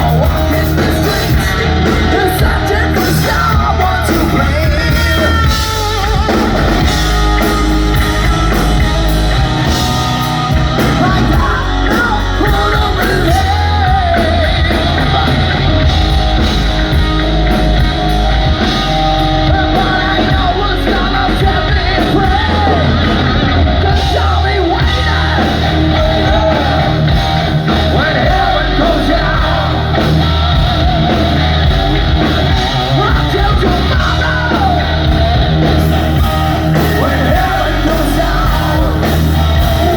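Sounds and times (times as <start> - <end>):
person singing: 0.0 - 17.1, 19.2 - 39.9
rock band playing live: 0.0 - 39.9.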